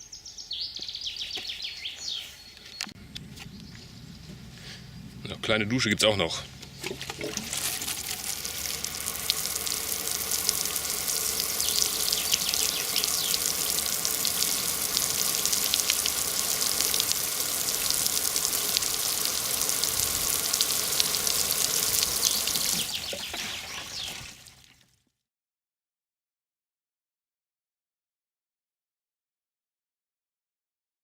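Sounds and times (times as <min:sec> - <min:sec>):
water spray hissing: 0:07.0 - 0:24.6.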